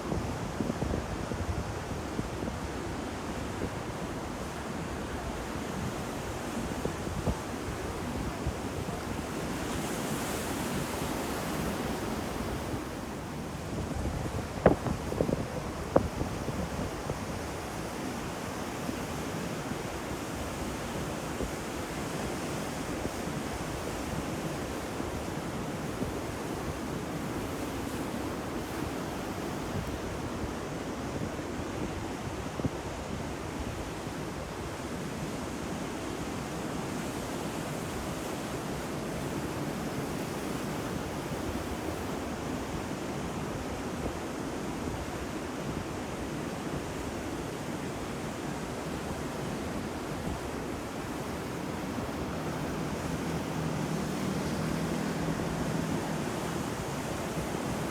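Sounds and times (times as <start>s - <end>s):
wind buffeting microphone: 11.1s - 17.6s
ocean surf crashing: 46.4s - 57.9s.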